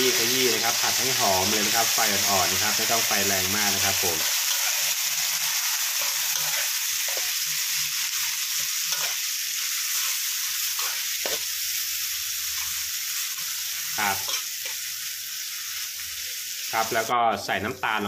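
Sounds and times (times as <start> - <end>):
paste sizzling in oil: 0.0 - 17.7
metal spatula scraping a pan: 4.2 - 11.6, 12.5 - 14.8.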